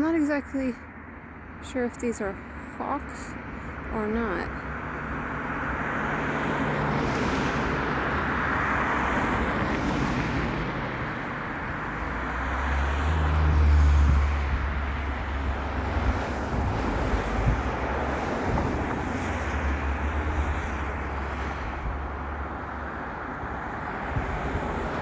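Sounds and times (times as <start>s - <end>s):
traffic noise: 0.0s - 25.0s
vehicle passing with rumble: 4.7s - 25.0s
wind on microphone: 13.2s - 22.2s, 23.7s - 25.0s.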